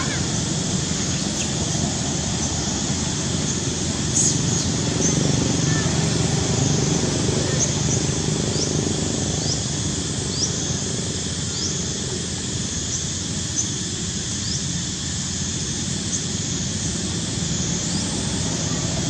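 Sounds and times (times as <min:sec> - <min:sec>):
high rising chirp: 0:00.0 - 0:19.0
low rumbling noise: 0:00.0 - 0:19.0.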